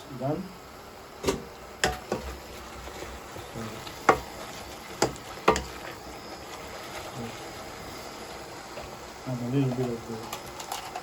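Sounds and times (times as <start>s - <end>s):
faint sizzle: 0.0s - 11.0s
utensil knocking against pan: 5.0s - 5.7s.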